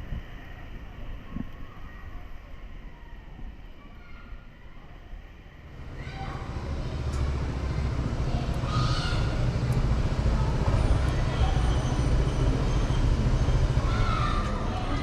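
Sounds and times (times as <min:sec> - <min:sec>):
wind on camera: 0:00.0 - 0:03.8
motorcycle engine rumble: 0:05.6 - 0:15.0.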